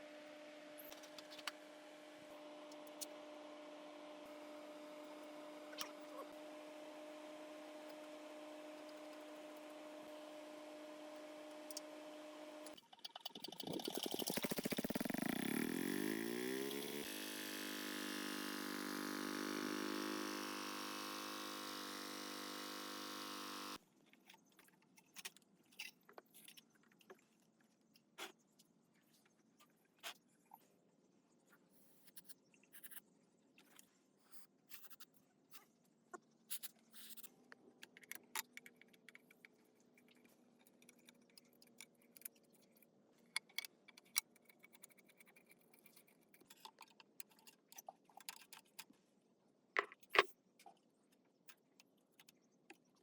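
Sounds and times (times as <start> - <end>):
motor-driven workshop tool running: 0.0 - 12.8, 13.9 - 23.8
small clicks of parts handled: 24.1 - 27.2, 36.5 - 48.9.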